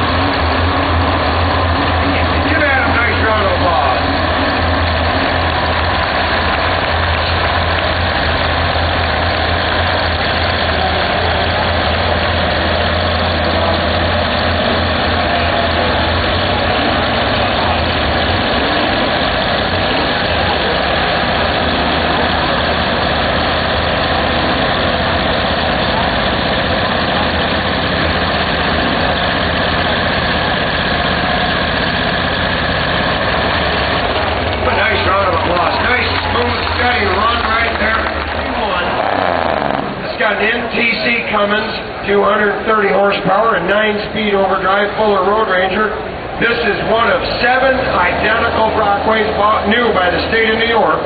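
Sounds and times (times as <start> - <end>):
diesel truck engine running: 0.0 - 51.0.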